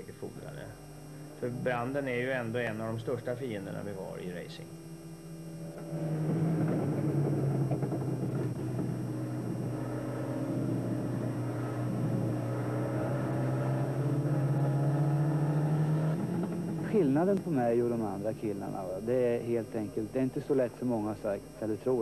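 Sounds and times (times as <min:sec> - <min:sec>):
race car engine running hard: 0:05.2 - 0:18.2.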